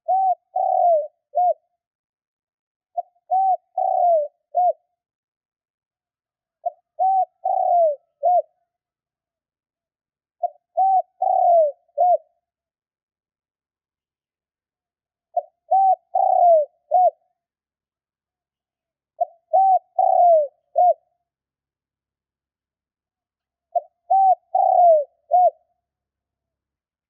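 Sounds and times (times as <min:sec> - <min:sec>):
dove cooing: 0:00.0 - 0:01.7, 0:03.0 - 0:04.9, 0:06.6 - 0:08.6, 0:10.4 - 0:12.3, 0:15.3 - 0:17.2, 0:19.2 - 0:21.1, 0:23.7 - 0:25.7.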